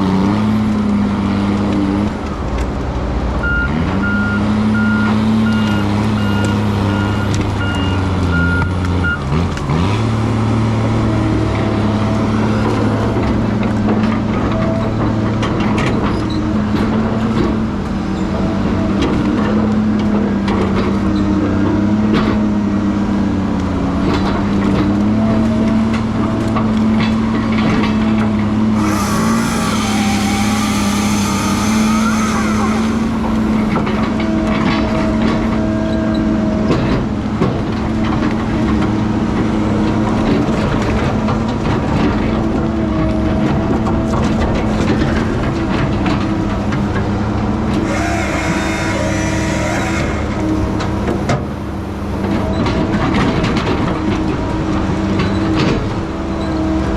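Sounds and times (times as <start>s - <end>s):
heavy diesel engine running: 0.0s - 56.9s
loud hiss: 28.8s - 33.6s.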